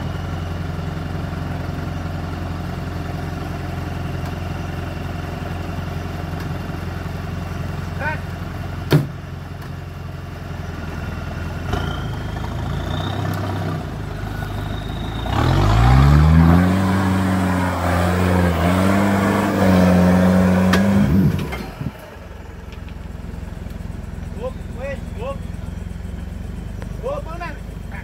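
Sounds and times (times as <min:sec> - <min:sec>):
car engine revving: 0:11.4 - 0:28.0.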